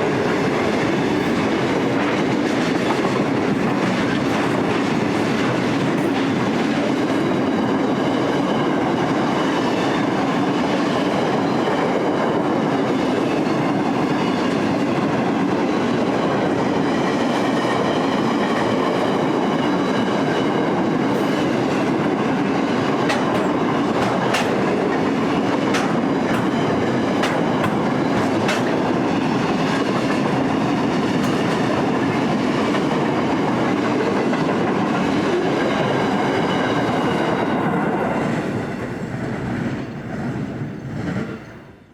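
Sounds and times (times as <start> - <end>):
train wheels rumbling on rails: 0.0 - 41.9
wheels clicking on rail joints: 12.3 - 41.5.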